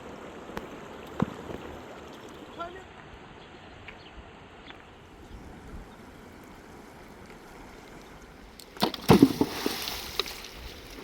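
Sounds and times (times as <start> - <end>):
loud knocks and rustling: 8.8 - 9.8.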